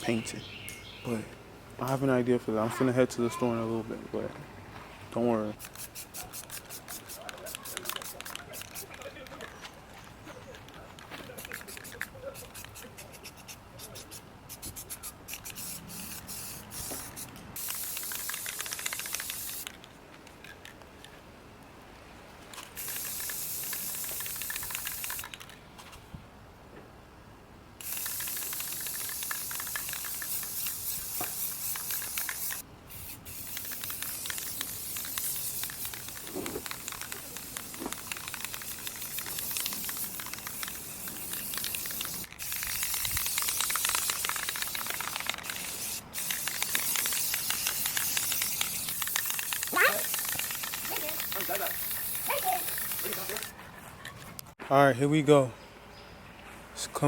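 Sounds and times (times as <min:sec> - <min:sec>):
spray paint can hissing: 0:05.6 - 0:09.2, 0:11.3 - 0:19.8, 0:22.8 - 0:25.6, 0:27.8 - 0:53.6.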